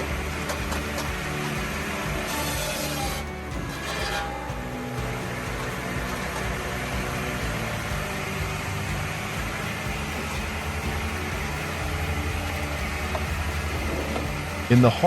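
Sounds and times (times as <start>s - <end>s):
machine engine drone: 0.0s - 15.0s
rushing noise: 0.0s - 15.0s.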